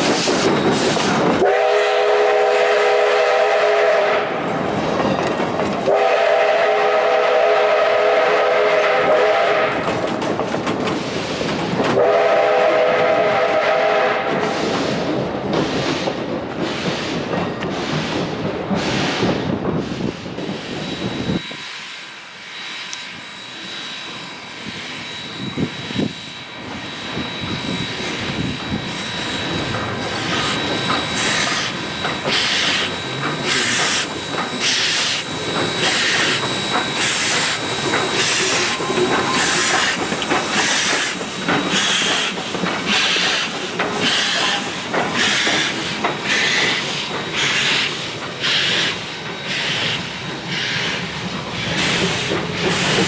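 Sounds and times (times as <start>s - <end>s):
locomotive exhaust chuffs: 22.6s - 53.0s.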